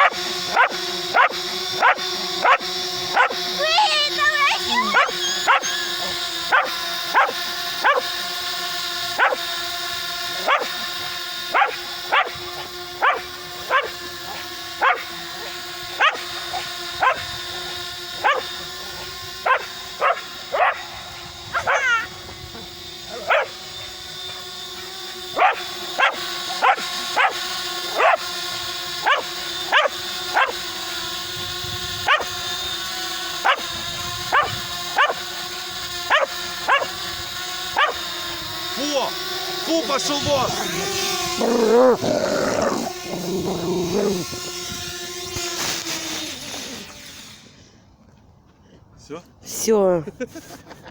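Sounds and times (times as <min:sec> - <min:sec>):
dog barking: 0:00.0 - 0:03.4, 0:04.7 - 0:08.2, 0:09.2 - 0:09.5, 0:10.4 - 0:10.8, 0:11.5 - 0:12.4, 0:13.0 - 0:17.3, 0:18.2 - 0:18.6, 0:19.4 - 0:20.9, 0:21.6 - 0:22.0, 0:23.1 - 0:23.6, 0:25.4 - 0:28.3, 0:29.0 - 0:30.6, 0:32.1 - 0:32.3, 0:33.4 - 0:33.7, 0:34.3 - 0:35.3, 0:36.1 - 0:37.0, 0:37.8 - 0:38.0
drone propellers humming: 0:00.0 - 0:48.0.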